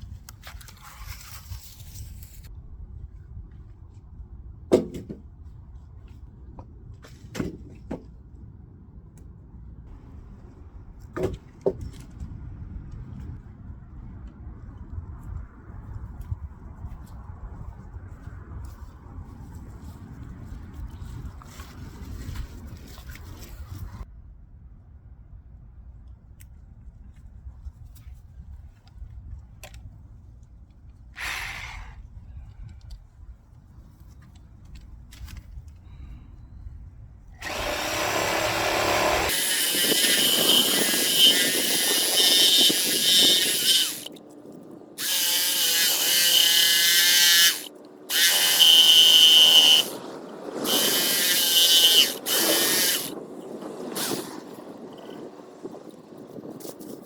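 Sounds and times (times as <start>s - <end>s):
handheld power tool running: 37.4s - 44.2s, 45.0s - 53.2s, 54.0s - 54.4s.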